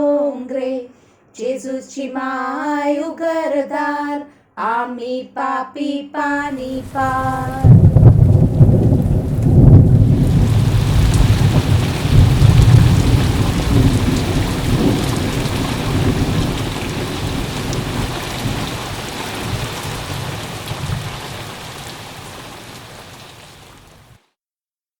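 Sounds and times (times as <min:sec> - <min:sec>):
rolling thunder: 0:06.4 - 0:21.9
steady rain: 0:06.4 - 0:24.2.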